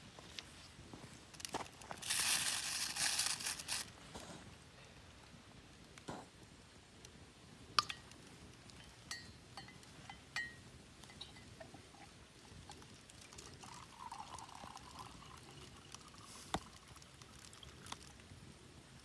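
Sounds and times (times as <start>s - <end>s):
light clinks: 8.8s - 11.7s
liquid pouring: 12.0s - 18.1s.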